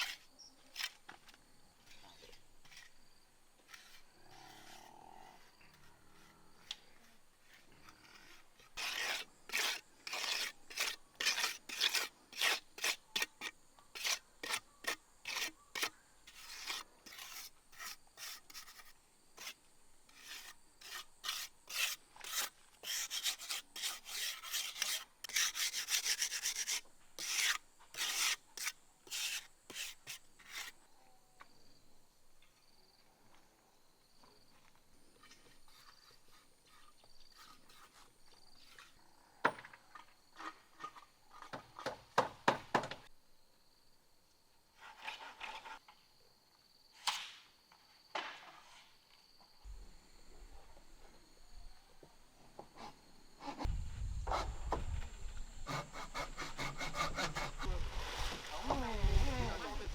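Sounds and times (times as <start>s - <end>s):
rasping scraping strokes: 7.0s - 30.8s, 55.7s - 59.8s.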